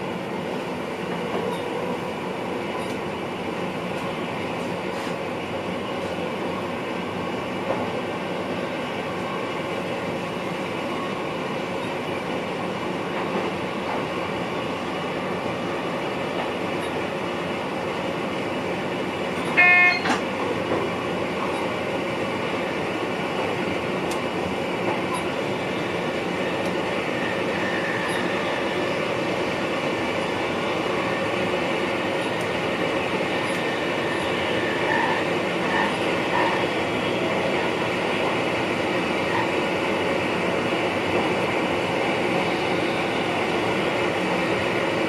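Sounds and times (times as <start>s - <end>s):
electric train running hum: 0.0s - 45.0s
short loud pitched tone: 19.6s - 20.2s.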